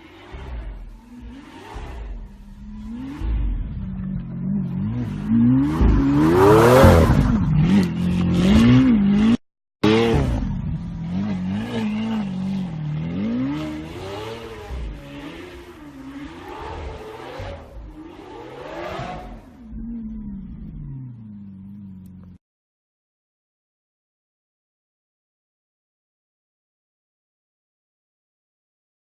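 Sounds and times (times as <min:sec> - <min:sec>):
car engine revving: 0:00.0 - 0:22.4.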